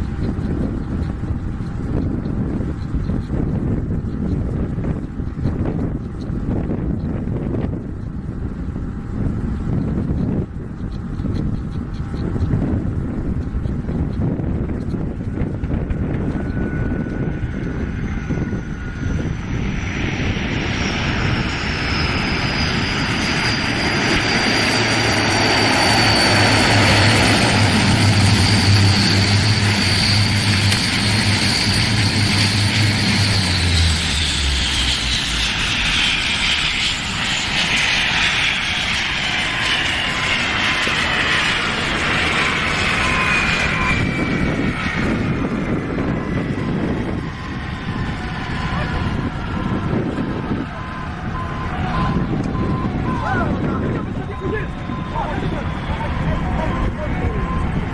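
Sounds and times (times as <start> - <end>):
aircraft engines passing: 0.0 - 57.9.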